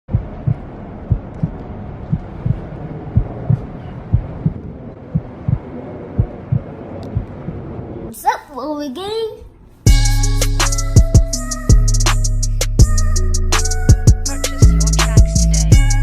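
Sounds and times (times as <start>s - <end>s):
heartbeat thumps: 0.1s - 7.8s, 9.9s - 11.9s, 13.9s - 16.0s
steady low hum: 0.1s - 8.1s.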